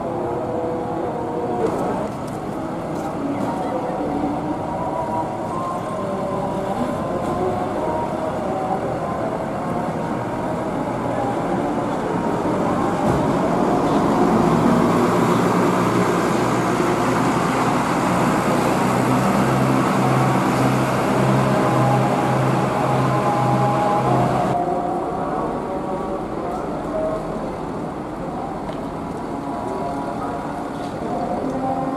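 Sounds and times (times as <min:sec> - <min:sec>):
bus engine humming: 0:00.0 - 0:31.9.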